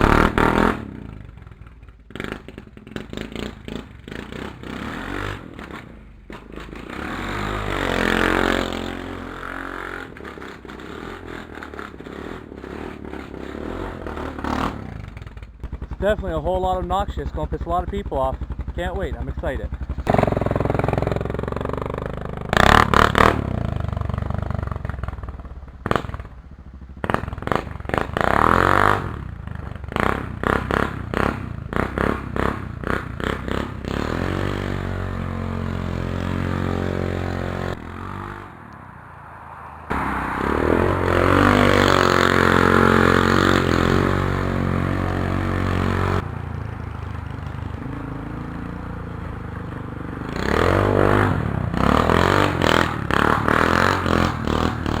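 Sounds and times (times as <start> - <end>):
atv engine revving: 0.0 - 38.8, 39.9 - 55.0.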